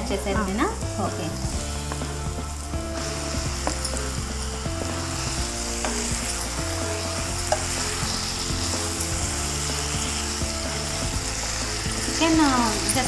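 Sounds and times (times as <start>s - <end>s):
chicken sizzling in hot oil: 0.0s - 13.0s
spatula scraping and tapping pan: 3.2s - 10.4s.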